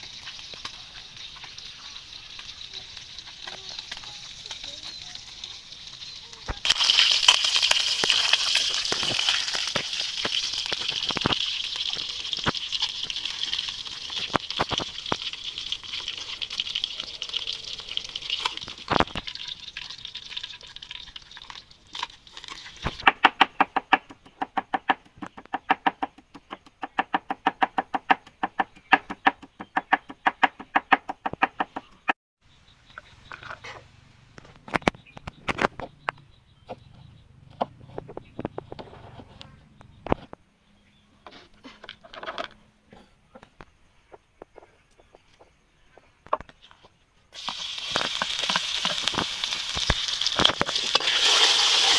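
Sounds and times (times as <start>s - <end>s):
fish sizzling in hot oil: 0.0s - 23.1s, 47.4s - 51.9s.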